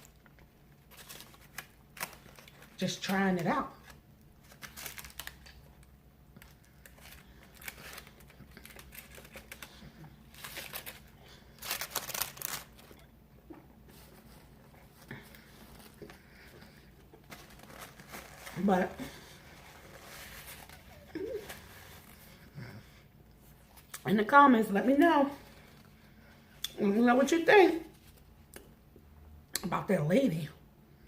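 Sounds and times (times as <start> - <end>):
rustling: 0.0 - 13.1, 13.8 - 22.6.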